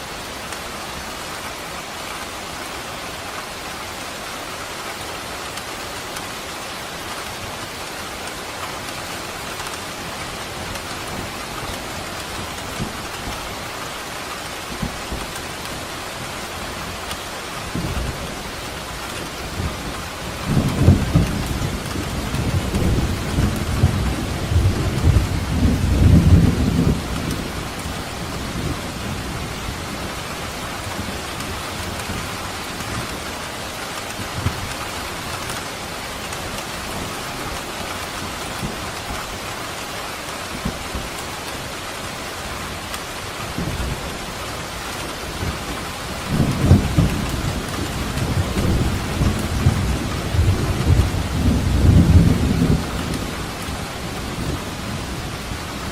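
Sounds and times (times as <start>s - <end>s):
steady rain falling: 0.0s - 55.9s
thunder rumbling: 43.4s - 55.9s.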